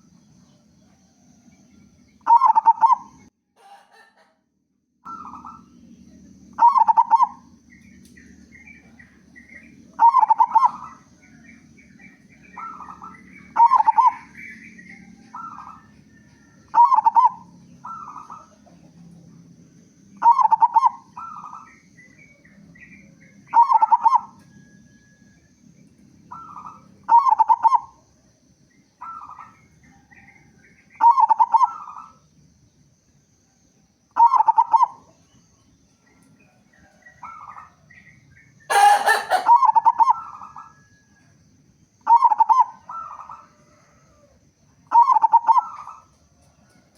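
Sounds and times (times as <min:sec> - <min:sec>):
dove cooing: 0:02.3 - 0:04.3, 0:06.6 - 0:07.5, 0:10.0 - 0:11.4, 0:12.0 - 0:18.8, 0:20.2 - 0:21.8, 0:23.5 - 0:24.8, 0:26.3 - 0:28.0, 0:34.2 - 0:35.1, 0:38.7 - 0:40.8, 0:42.1 - 0:44.3, 0:44.9 - 0:46.0
small birds chirping: 0:05.0 - 0:46.8.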